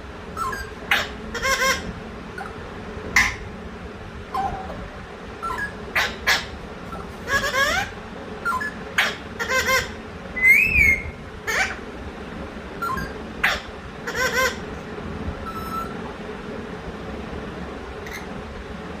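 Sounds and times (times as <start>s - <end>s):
bird whistle: 0.4s - 1.8s, 5.4s - 11.8s, 12.8s - 14.6s, 15.4s - 16.0s
pet bird squawky chattering: 0.4s - 3.5s, 4.3s - 11.8s, 12.8s - 14.7s, 15.4s - 16.0s, 18.0s - 18.3s.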